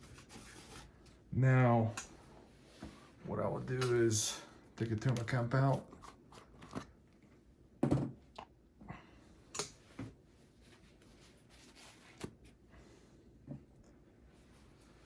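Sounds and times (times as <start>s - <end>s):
clicks and knocks handling packaging: 4.8s - 6.9s.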